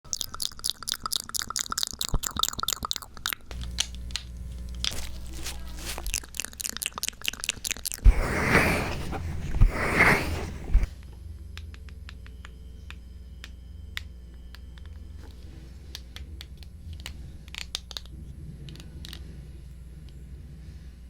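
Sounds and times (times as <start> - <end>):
soft crackles: 3.5 - 10.9
rustling: 4.7 - 6.4, 8.0 - 10.9.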